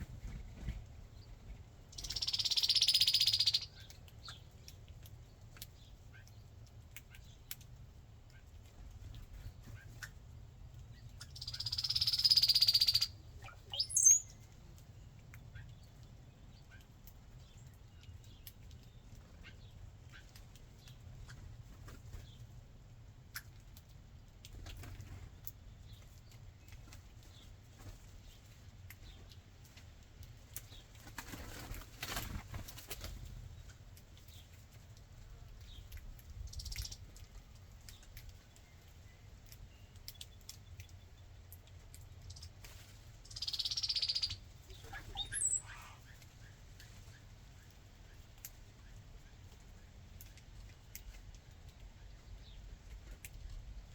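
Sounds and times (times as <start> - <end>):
bird wings flapping: 31.0 - 33.4.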